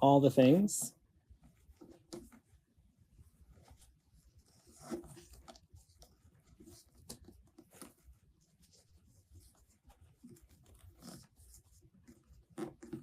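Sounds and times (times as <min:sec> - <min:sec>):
ribbon rustling and crinkling: 0:01.4 - 0:13.0.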